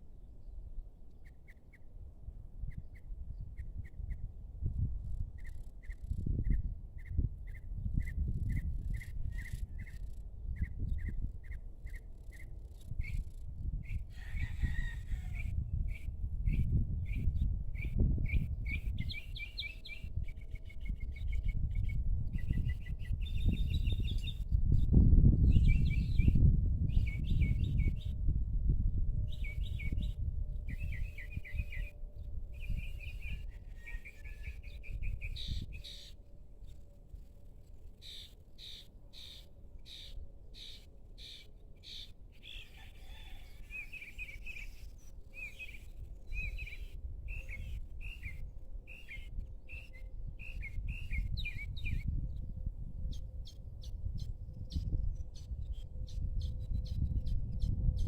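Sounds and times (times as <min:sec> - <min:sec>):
songbirds chirping: 0:29.3 - 0:57.1.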